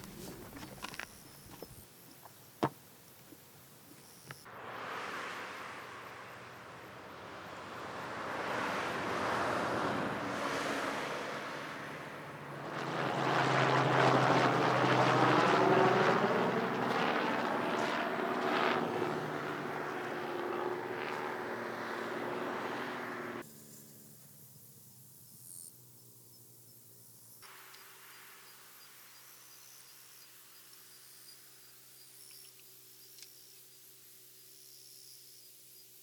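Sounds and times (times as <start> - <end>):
wind rush: 4.5 - 16.6.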